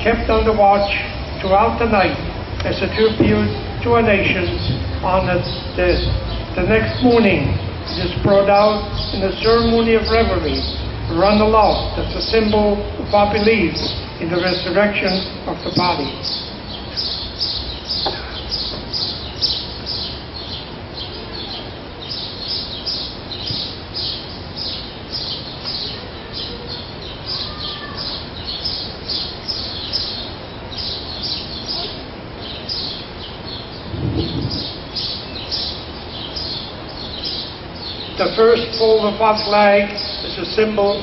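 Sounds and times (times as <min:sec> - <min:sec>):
small bird chirping: 0:11.6 - 0:38.9.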